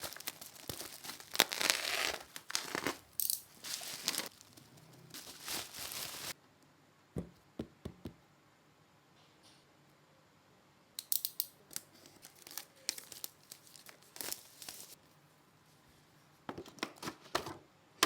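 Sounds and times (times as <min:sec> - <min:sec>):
packaging torn and crumpled: 0:00.0 - 0:06.4, 0:11.8 - 0:15.0.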